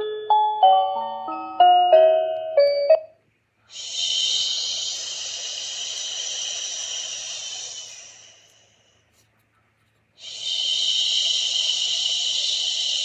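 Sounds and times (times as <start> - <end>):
white noise machine hissing: 3.5 - 9.4, 10.1 - 13.0.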